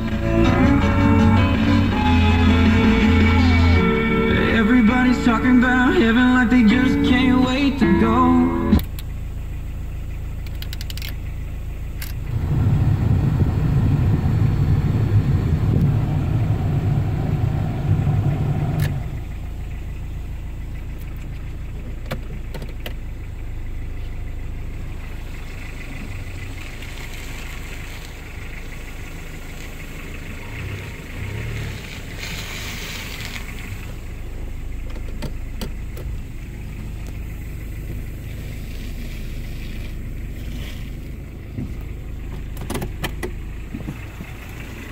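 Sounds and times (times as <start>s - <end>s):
diesel engine rumbling: 0.0s - 44.9s.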